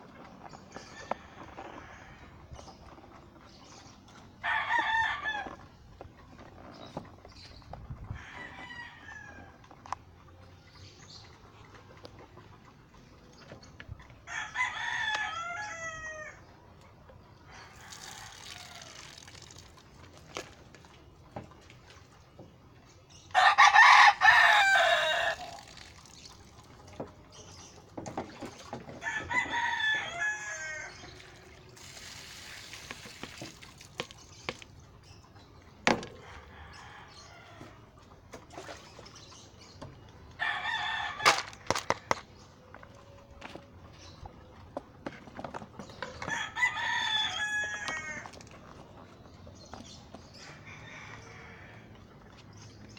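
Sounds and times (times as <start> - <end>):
roosters crowing: 0.7 - 2.7, 4.4 - 5.8, 8.1 - 9.6, 14.2 - 16.5, 17.5 - 19.2, 23.2 - 25.7, 28.9 - 31.4, 36.0 - 38.0, 40.4 - 42.2, 45.8 - 48.8, 49.6 - 52.3.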